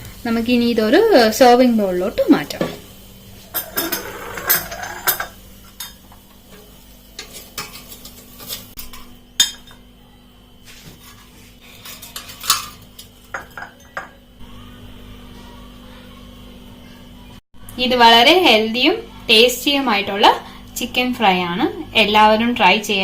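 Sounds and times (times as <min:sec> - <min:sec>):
utensils and dishes clinking: 0:03.4 - 0:09.9, 0:11.0 - 0:14.3.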